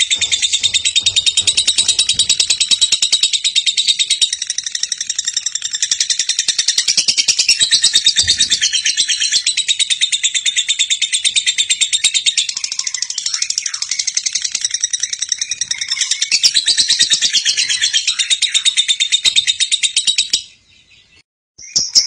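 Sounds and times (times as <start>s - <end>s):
lovebird rattling trill: 0.0s - 10.2s.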